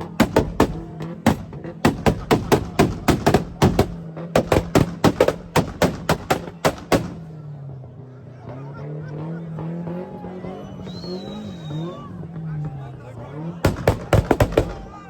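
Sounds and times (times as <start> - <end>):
car exhaust bangs: 0.0 - 7.4, 11.1 - 15.0
car engine revving: 0.0 - 15.0.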